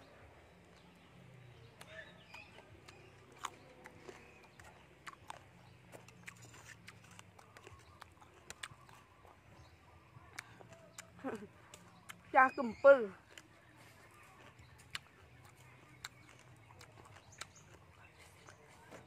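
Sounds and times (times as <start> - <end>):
chewing raw eggplant: 0.0 - 19.0
crisp mouth clicks: 1.8 - 9.7, 10.3 - 12.3, 14.4 - 19.0.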